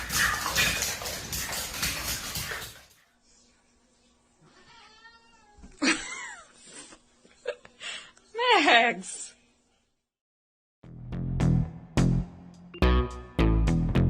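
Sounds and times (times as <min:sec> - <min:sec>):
cat meowing: 0:04.5 - 0:05.6.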